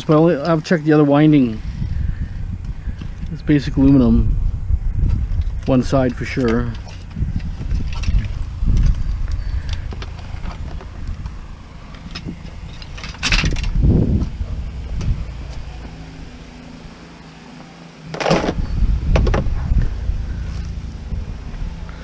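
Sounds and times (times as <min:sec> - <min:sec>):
scrap metal clicks and knocks: 0:09.6 - 0:13.8.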